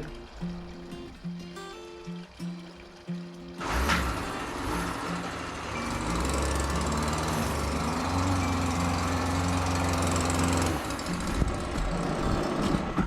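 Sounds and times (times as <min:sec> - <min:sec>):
string trimmer running: 0:03.4 - 0:12.2.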